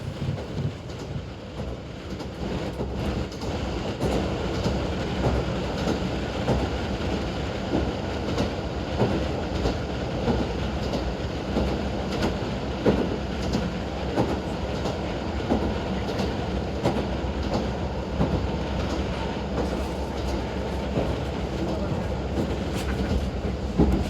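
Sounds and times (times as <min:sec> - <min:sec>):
diesel railcar engine drone: 0:11.1 - 0:24.0.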